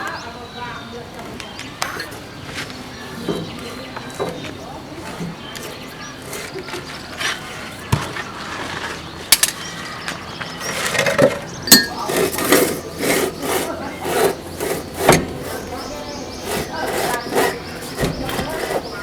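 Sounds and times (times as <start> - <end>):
metal knocks and clinks: 1.8 - 2.6, 10.6 - 19.0
rhythmic scraping strokes: 1.8 - 7.9, 10.6 - 19.0.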